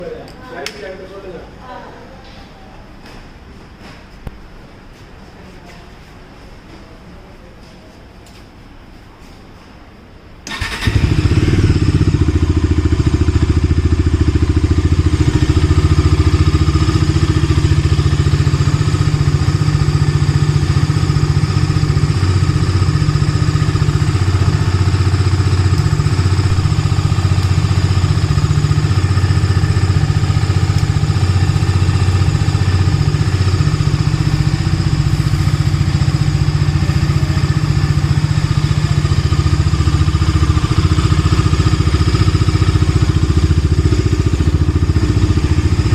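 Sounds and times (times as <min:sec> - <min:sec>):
motorcycle engine starting and idling: 0:10.4 - 0:45.9.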